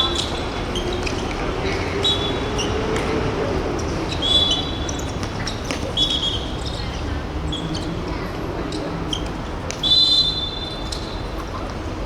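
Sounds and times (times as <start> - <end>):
sneakers squeaking on floor: 3.8 - 8.0.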